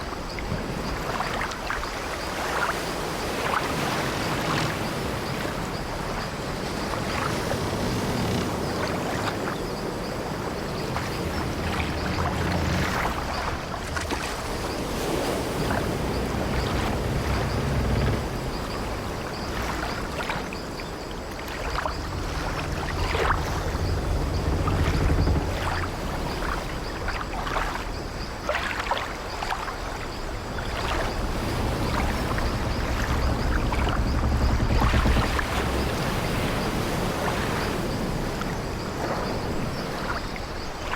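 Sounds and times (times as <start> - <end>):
sea waves washing: 0.0 - 40.9
water lapping against wooden hull: 0.0 - 40.9
low rumble: 21.7 - 27.1, 30.5 - 37.1
wooden ship timbers creaking: 31.1 - 37.0.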